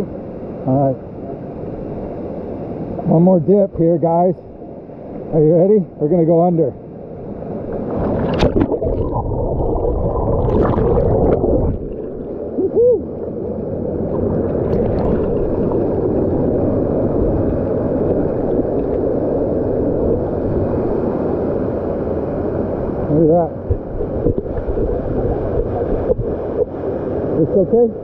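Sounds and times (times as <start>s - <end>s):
muffled underwater rushing water: 0.0s - 28.0s
water splashes and gurgles: 7.2s - 28.0s.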